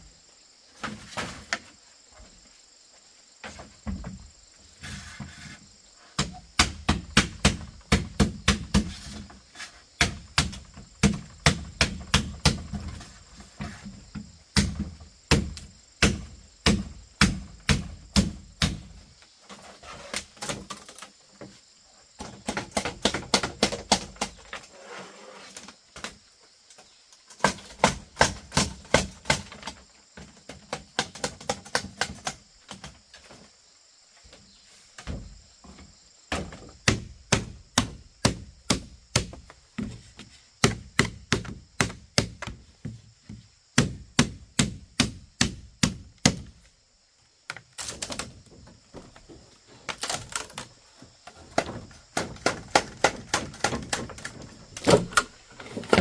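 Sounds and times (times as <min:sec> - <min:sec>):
blade chopping bamboo: 0:06.2 - 0:09.3, 0:10.0 - 0:12.8, 0:14.6 - 0:18.9, 0:22.2 - 0:24.6, 0:27.4 - 0:32.9, 0:36.3 - 0:39.9, 0:40.6 - 0:42.6, 0:43.8 - 0:46.5, 0:49.9 - 0:50.7, 0:51.5 - 0:56.0.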